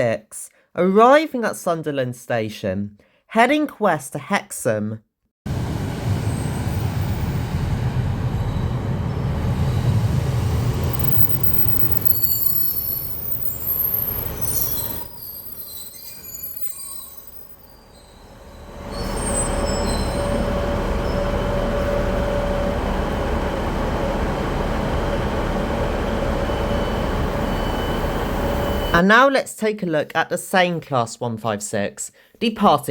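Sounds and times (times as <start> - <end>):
train engine humming: 5.5 - 29.0
train rumbling: 5.5 - 29.0
brake and wheel squeals: 6.2 - 29.0.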